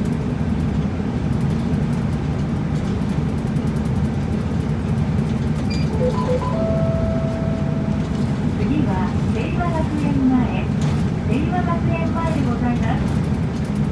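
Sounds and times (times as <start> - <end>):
bus engine and road drone: 0.0 - 13.9
electronic chime beeps: 6.0 - 8.0.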